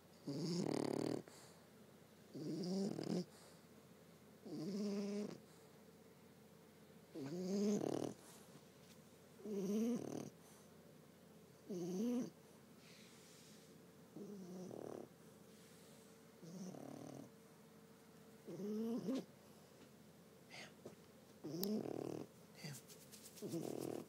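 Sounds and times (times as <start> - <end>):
dog snoring: 0.1 - 1.6, 2.3 - 3.6, 4.4 - 5.6, 7.1 - 8.5, 9.4 - 10.7, 11.6 - 12.4, 13.0 - 17.3, 18.4 - 19.3, 21.4 - 22.3, 23.4 - 24.0.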